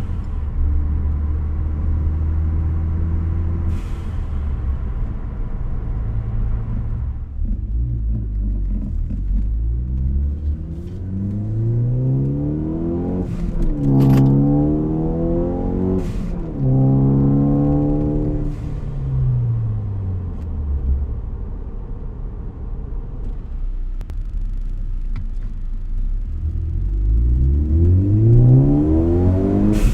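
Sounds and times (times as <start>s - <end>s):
turbocharged car engine revving: 7.5s - 20.0s, 26.0s - 29.9s.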